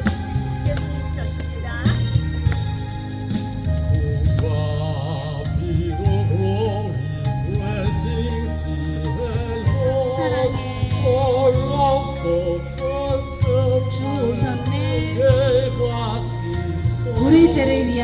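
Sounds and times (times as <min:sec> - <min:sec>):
instrumental backing: 0:00.0 - 0:18.0
solo voice singing a hymn: 0:03.9 - 0:18.0.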